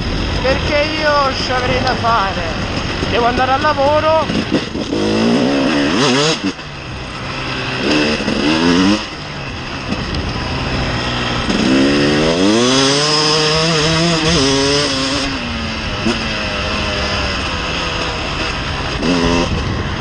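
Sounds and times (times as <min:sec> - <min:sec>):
two-stroke motorcycle engine revving: 0:00.0 - 0:20.0.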